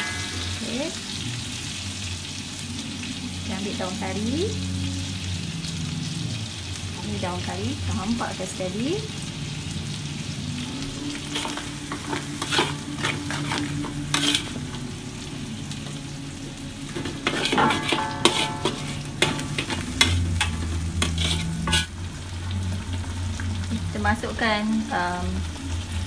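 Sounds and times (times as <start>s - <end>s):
metal spatula scraping wok: 0.0s - 1.6s, 11.0s - 16.1s, 16.8s - 22.2s
low steady hum: 0.0s - 26.0s
spice paste sizzling in oil: 0.0s - 26.0s.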